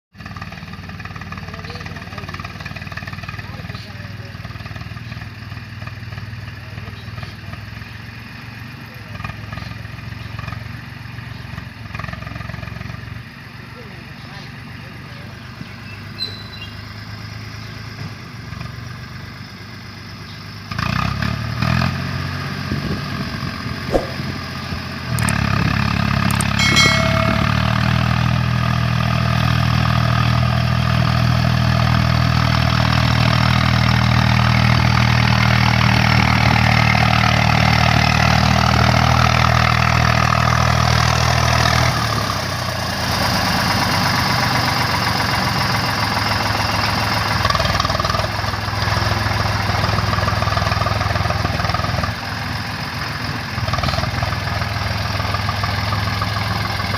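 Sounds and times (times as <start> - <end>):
tractor diesel engine running: 0.2 - 16.2, 22.1 - 56.9
short clatters: 26.3 - 28.2.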